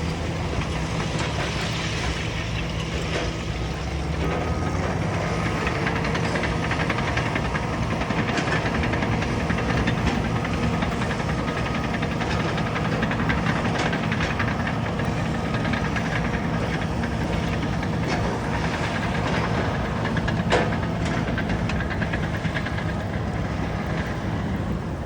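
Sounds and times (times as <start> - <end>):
bulldozer diesel engine: 0.0 - 25.0
rapid metallic clatter: 0.6 - 25.0.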